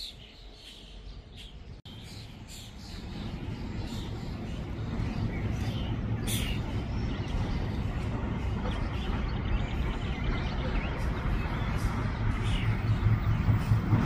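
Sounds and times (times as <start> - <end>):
birds chirping: 0.0 - 14.0
freight train rumbling: 0.0 - 14.0.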